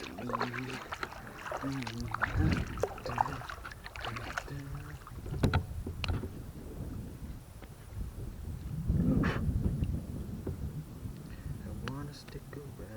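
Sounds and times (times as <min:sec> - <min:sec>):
paddle knocking against hull: 0:00.0 - 0:07.0, 0:09.8 - 0:10.7
paddle splashing in water: 0:00.0 - 0:07.2.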